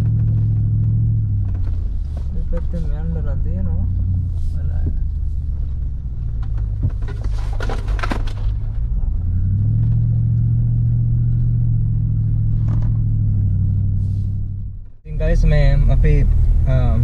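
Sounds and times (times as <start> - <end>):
vehicle engine humming: 0.0 - 17.0
clicks and rattles: 6.3 - 8.7.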